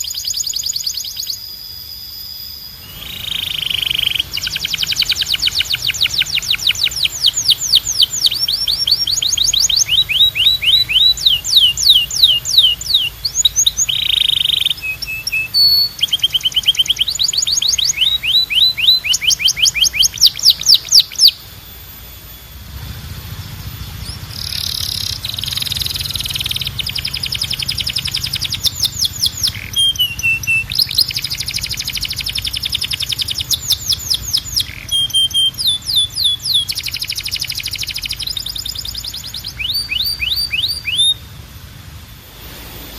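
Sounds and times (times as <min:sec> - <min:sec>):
canary singing trills: 0:00.0 - 0:41.4
low steady hum: 0:00.0 - 0:42.9.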